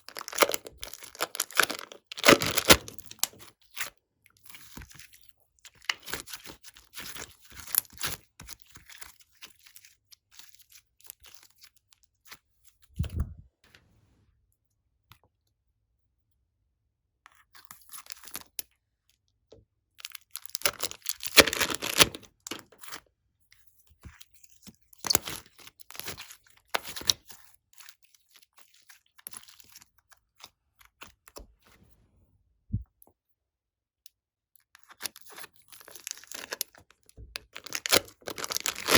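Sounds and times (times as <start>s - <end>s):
slime crackling and popping: 0.0s - 3.4s, 20.5s - 22.6s, 37.4s - 38.9s.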